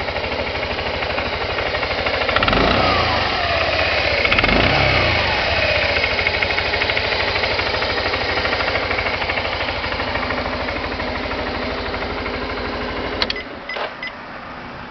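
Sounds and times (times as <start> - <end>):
scooter engine idling: 0.0 - 14.9.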